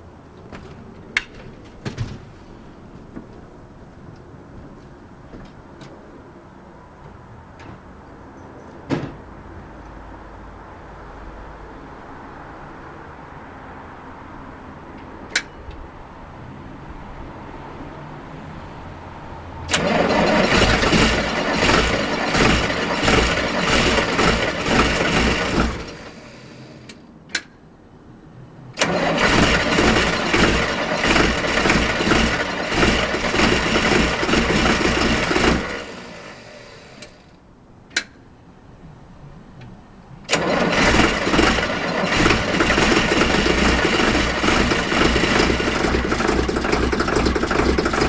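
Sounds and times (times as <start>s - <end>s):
diesel engine cranking: 19.6s - 27.5s, 28.8s - 37.4s, 40.3s - 48.0s.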